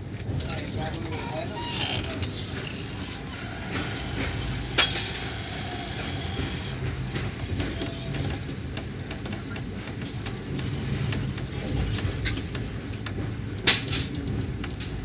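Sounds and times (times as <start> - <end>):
low train rumble: 0.0 - 15.0.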